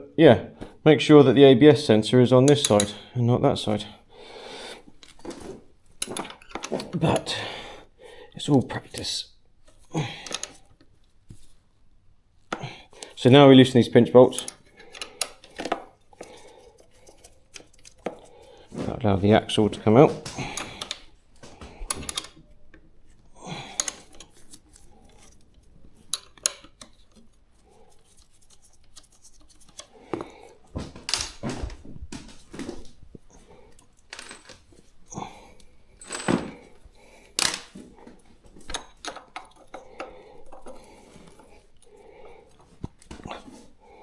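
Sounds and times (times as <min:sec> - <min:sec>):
metal tools clinking: 0:14.2 - 0:18.4, 0:33.7 - 0:36.8.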